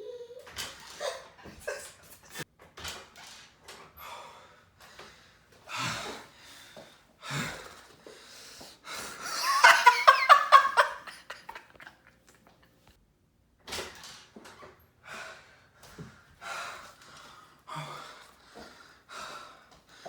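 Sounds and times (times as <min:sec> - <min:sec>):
loud laughter: 0:09.2 - 0:12.1.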